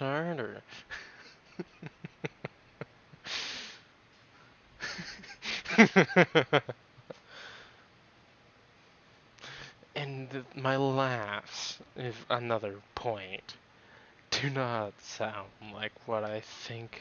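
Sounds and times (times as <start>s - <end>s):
man laughing: 0.7s - 3.4s, 4.8s - 7.2s.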